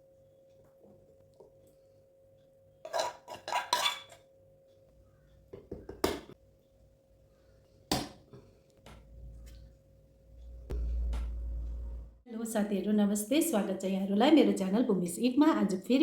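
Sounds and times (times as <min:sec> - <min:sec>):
dishes and cutlery clinking: 0:02.8 - 0:04.2.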